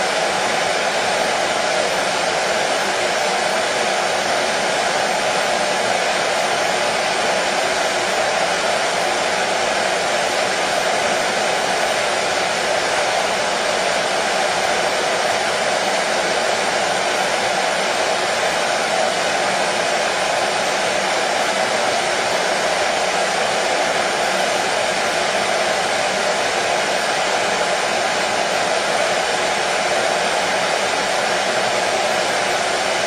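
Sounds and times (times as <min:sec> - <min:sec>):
hair dryer running: 0:00.0 - 0:33.0.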